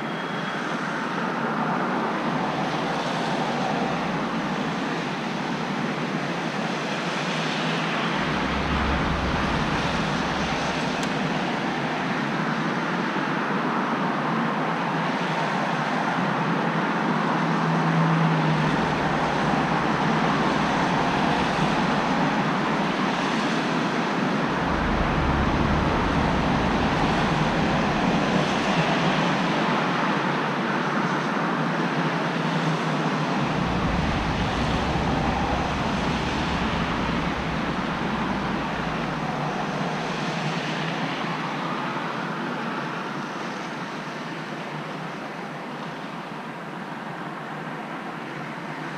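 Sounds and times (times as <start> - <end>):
rain: 0.9 - 13.5, 14.7 - 31.4, 32.1 - 42.9
tyres hissing on wet road: 7.0 - 12.1, 17.8 - 30.1, 33.0 - 42.0
vehicles passing: 7.6 - 12.3, 17.4 - 30.2, 32.4 - 41.4
low rumble: 7.8 - 12.0, 18.3 - 29.5, 32.9 - 40.6.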